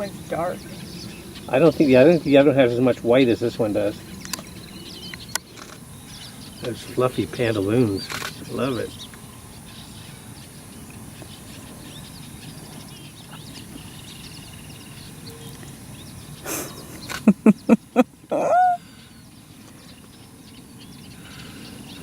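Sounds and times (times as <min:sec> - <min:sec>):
small birds chirping: 0:00.0 - 0:22.0
animal calling loudly: 0:16.5 - 0:18.8.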